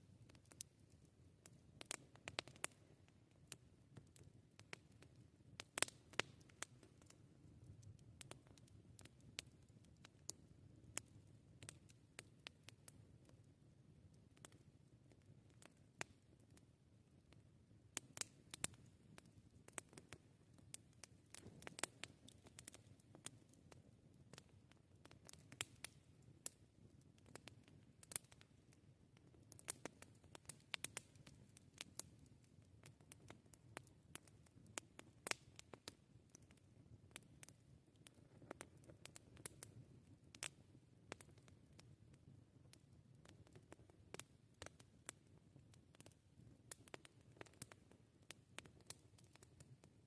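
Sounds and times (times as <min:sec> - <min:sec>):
low rumble of burning fire: 0:00.0 - 0:50.0
campfire pops and snaps: 0:00.3 - 0:13.4, 0:14.3 - 0:16.6, 0:18.0 - 0:41.9, 0:42.7 - 0:49.6.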